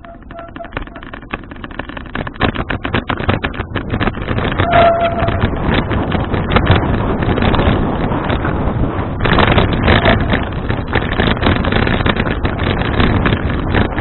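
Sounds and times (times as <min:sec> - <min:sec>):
clicks and knocks: 0:00.0 - 0:07.6
wind buffeting microphone: 0:00.0 - 0:14.0.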